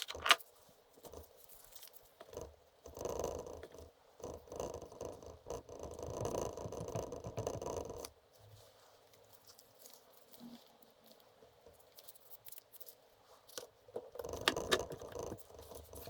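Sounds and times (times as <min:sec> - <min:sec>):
scraping and rustling handling noise: 0:00.0 - 0:02.3, 0:08.3 - 0:16.0.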